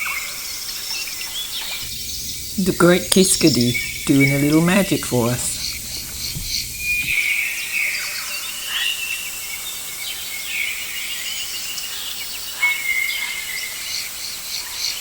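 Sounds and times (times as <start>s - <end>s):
birds calling and chirping: 1.6s - 7.2s
insects hissing: 1.7s - 7.2s.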